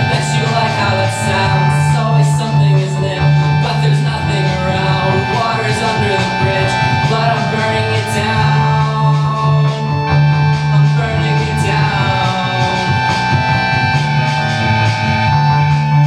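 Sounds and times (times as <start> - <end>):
bass guitar: 0.0 - 16.0
electric guitar: 0.0 - 16.0
steady drum beat: 0.0 - 16.0.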